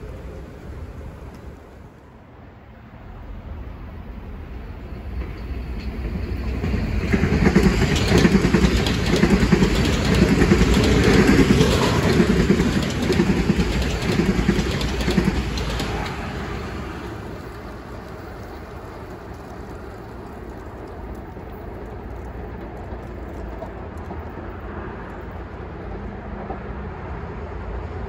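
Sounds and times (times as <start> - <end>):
train wheels clicking over rail joints: 4.8 - 26.6.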